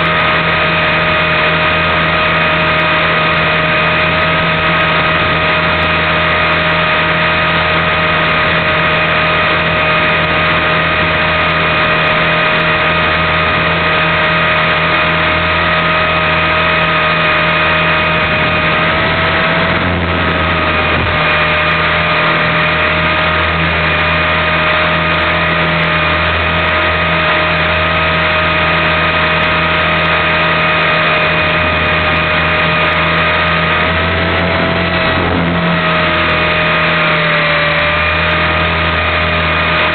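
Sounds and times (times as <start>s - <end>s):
low hum: 0.0s - 39.9s
rc helicopter motor whine: 0.0s - 39.9s.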